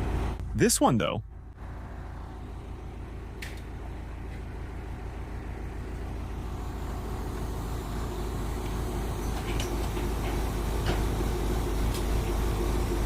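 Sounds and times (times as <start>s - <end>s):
backhoe engine running: 0.0s - 13.0s.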